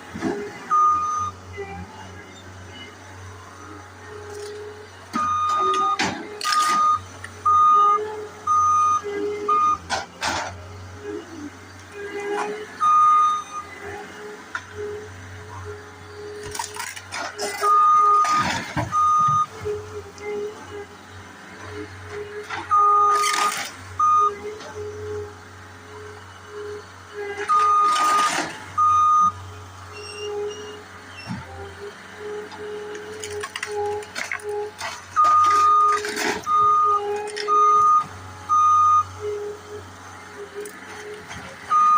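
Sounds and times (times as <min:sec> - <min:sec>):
machine engine running: 0:00.0 - 0:41.9
backup alarm beeping: 0:05.2 - 0:09.8, 0:17.6 - 0:19.6, 0:27.4 - 0:30.8, 0:35.1 - 0:39.2, 0:41.7 - 0:41.9
demolition crunching: 0:32.8 - 0:38.0.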